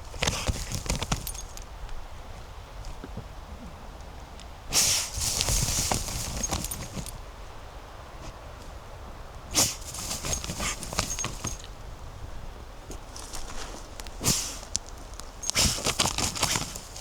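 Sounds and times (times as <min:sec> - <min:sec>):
dry leaves and twigs crackling: 0:00.0 - 0:02.1, 0:04.7 - 0:07.4, 0:09.5 - 0:12.0, 0:12.8 - 0:17.0.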